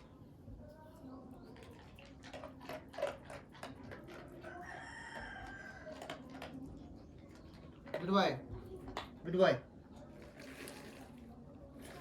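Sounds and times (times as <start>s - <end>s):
dog crunching food: 1.8s - 4.4s.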